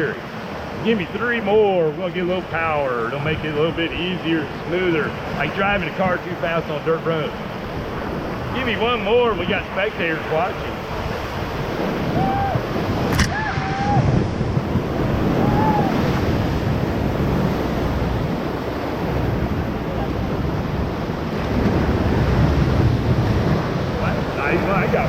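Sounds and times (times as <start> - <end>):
whitewater rapids rushing: 0.0 - 25.0
wind buffeting microphone: 7.2 - 25.0
people whooping: 12.1 - 14.1, 15.3 - 16.1.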